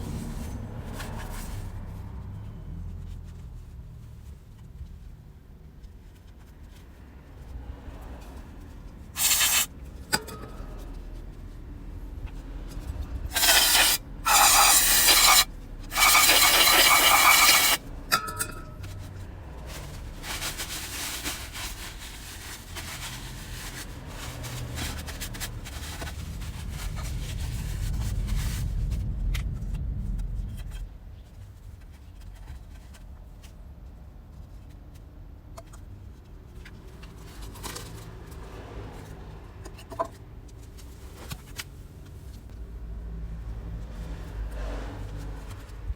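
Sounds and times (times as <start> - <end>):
rubbing and scraping: 5.7 - 11.8, 12.4 - 33.1
short loud hisses: 9.2 - 9.7, 13.4 - 17.8.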